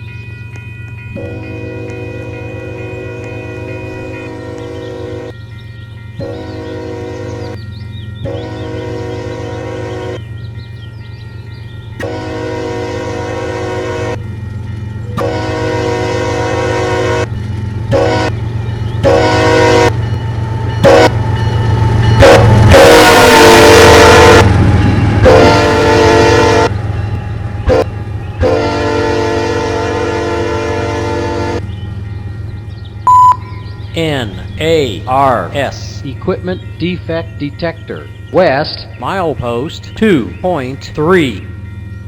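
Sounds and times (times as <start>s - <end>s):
locomotive engine rumble: 0.0s - 42.0s
locomotive air horn blasts: 4.4s - 5.4s, 6.2s - 7.5s, 8.3s - 10.2s, 12.0s - 14.2s, 15.2s - 17.3s, 17.9s - 18.4s, 19.0s - 20.0s, 20.8s - 21.2s, 22.2s - 24.5s, 25.2s - 26.7s, 27.7s - 31.6s.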